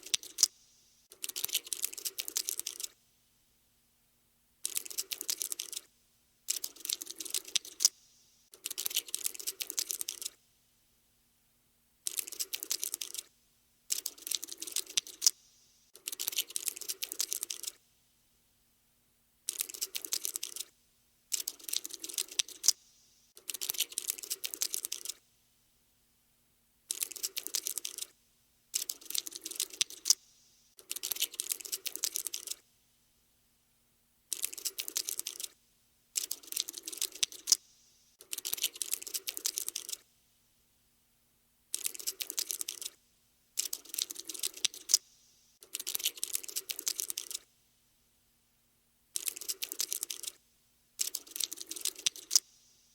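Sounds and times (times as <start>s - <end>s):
cockroach scuttling clicks: 0.0s - 3.0s, 4.6s - 5.9s, 6.5s - 10.4s, 12.1s - 13.3s, 13.9s - 15.4s, 16.0s - 17.8s, 19.5s - 20.7s, 21.3s - 22.8s, 23.4s - 25.2s, 26.9s - 28.1s, 28.8s - 32.6s, 34.3s - 35.6s, 36.2s - 40.0s, 41.7s - 43.0s, 43.6s - 47.5s, 49.2s - 50.4s, 51.0s - 52.6s.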